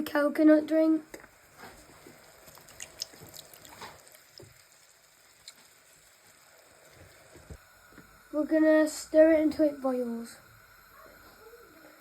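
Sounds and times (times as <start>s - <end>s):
liquid dripping and splashing: 1.1s - 7.6s.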